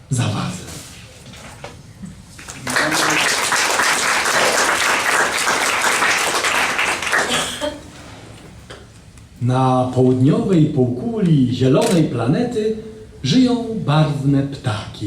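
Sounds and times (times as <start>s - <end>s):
audience applauding: 2.4s - 7.9s.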